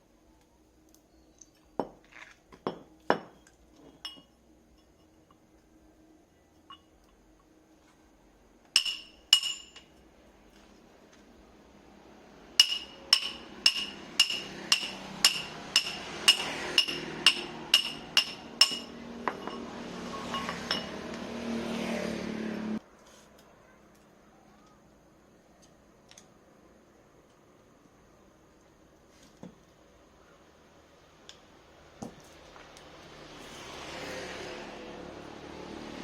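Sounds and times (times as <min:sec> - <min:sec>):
hammer striking metal: 0:08.8 - 0:09.8, 0:12.6 - 0:21.0.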